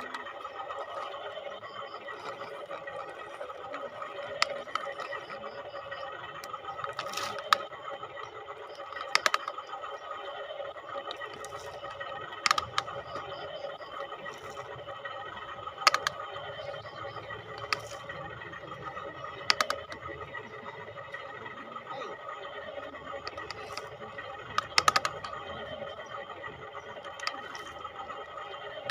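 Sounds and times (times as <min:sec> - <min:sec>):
small electric motors whining: 0:00.0 - 0:28.9
sharp clicks or knocks: 0:08.9 - 0:09.5, 0:12.4 - 0:13.2, 0:19.4 - 0:20.0, 0:24.5 - 0:25.4.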